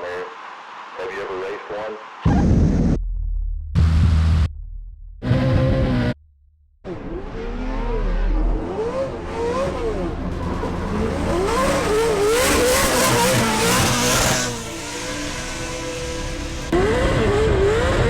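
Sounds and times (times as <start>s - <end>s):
engine revving hard: 6.9s - 18.0s.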